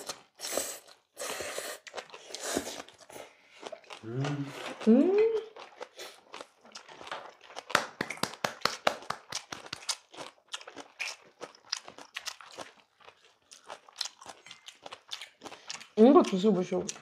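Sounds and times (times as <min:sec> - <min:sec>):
crunchy chewing: 0:00.0 - 0:07.7, 0:09.3 - 0:17.0.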